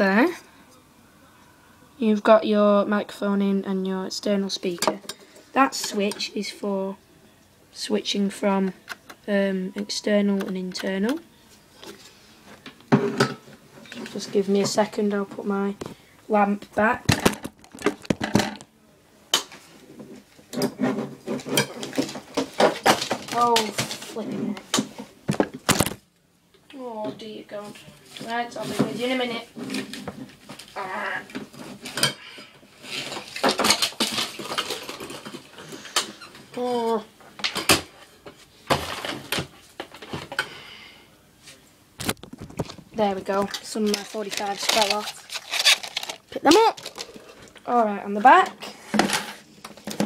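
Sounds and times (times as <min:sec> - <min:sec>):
records scraping rustle: 0:42.1 - 0:47.6.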